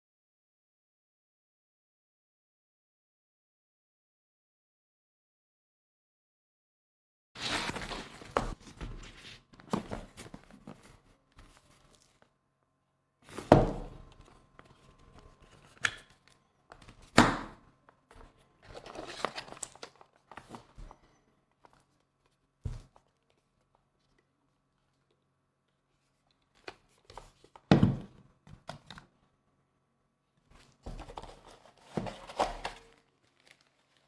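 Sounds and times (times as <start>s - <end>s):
rustling and crinkling: 7.4s - 12.3s, 17.9s - 25.2s, 30.5s - 34.0s.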